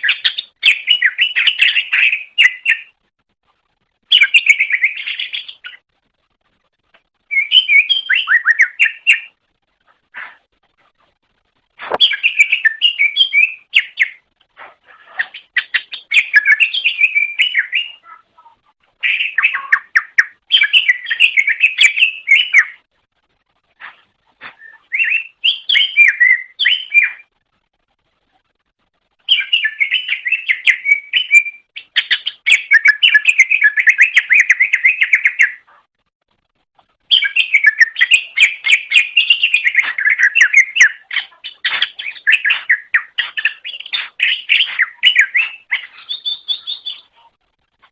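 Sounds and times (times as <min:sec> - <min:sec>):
bird singing varied chirps: 0:00.0 - 0:03.0, 0:04.0 - 0:05.8, 0:07.2 - 0:09.4, 0:11.9 - 0:14.3, 0:15.1 - 0:22.9, 0:24.5 - 0:27.3, 0:29.2 - 0:35.7, 0:37.1 - 0:47.3.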